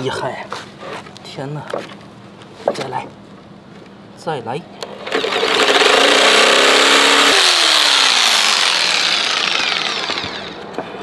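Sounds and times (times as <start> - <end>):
electric saw cutting plywood: 4.8 - 10.7.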